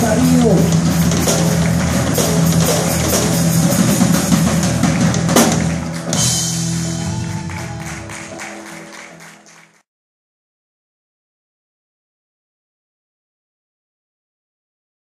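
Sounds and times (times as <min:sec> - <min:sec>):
band music with drums and guitar: 0:00.0 - 0:09.8.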